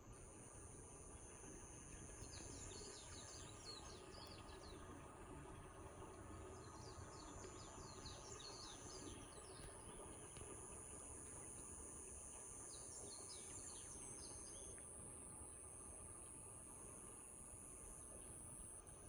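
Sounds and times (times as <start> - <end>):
insect drone: 8.3 - 19.0.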